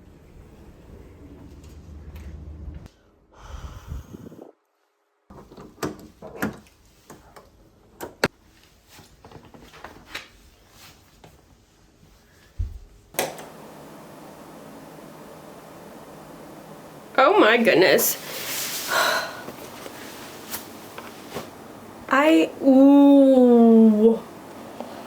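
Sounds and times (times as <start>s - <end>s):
room hiss: 13.0s - 25.0s.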